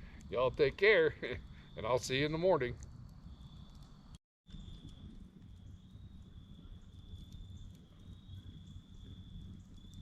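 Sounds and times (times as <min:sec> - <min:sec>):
crickets trilling: 0:00.0 - 0:03.8, 0:04.5 - 0:10.0.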